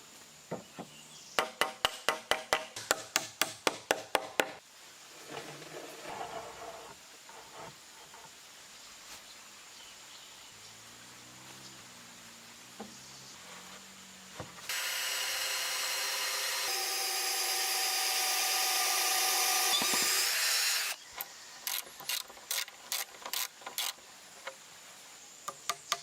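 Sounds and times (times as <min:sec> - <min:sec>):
hammer striking nails into wood: 0:01.4 - 0:04.6
wood scraping: 0:05.1 - 0:08.4.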